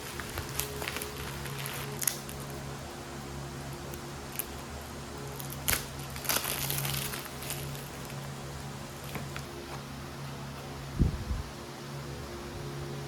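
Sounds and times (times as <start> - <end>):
crinkling rustle: 0.0 - 2.6, 5.4 - 8.2
steady low hum: 0.0 - 13.0.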